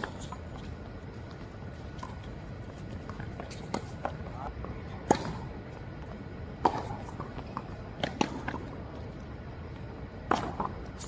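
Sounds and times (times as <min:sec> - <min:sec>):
tennis ball struck and bouncing: 0:06.6 - 0:08.6, 0:10.3 - 0:10.7.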